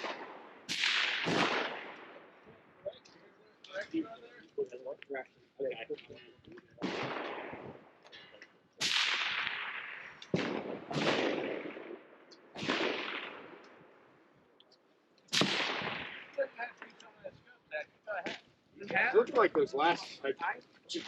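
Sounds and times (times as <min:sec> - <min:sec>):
rifle shots with echo: 0:00.0 - 0:02.5, 0:06.8 - 0:08.0, 0:08.8 - 0:14.1, 0:15.3 - 0:16.5.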